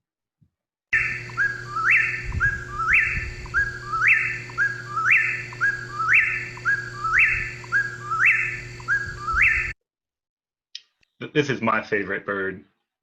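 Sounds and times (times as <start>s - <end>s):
bird whistled song: 1.0s - 9.8s.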